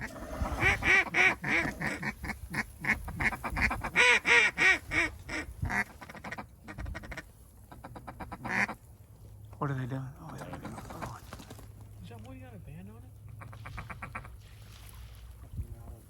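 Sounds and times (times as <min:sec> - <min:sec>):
duck quacking: 0:00.0 - 0:08.8, 0:10.2 - 0:11.2, 0:13.3 - 0:14.4.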